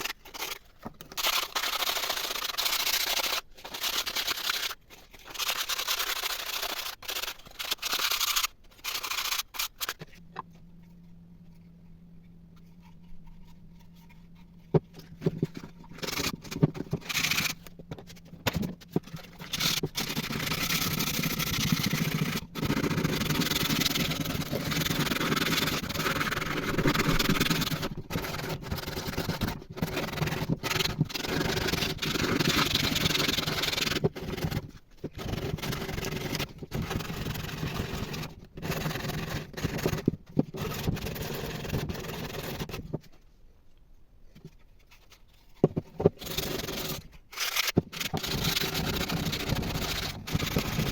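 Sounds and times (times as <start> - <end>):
low hum: 9.6 - 29.5.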